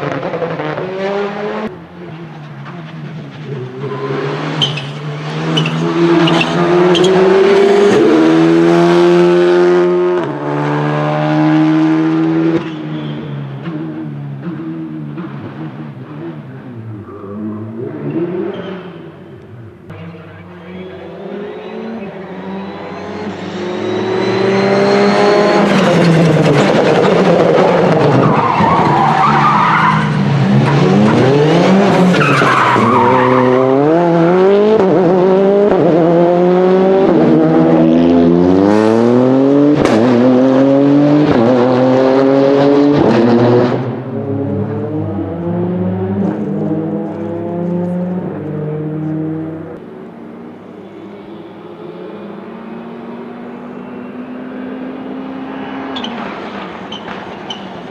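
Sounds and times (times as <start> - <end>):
rally car engine revving: 0.0 - 49.9
tyres squealing and skidding: 2.1 - 8.8, 12.6 - 14.0, 16.8 - 34.5, 50.6 - 57.9.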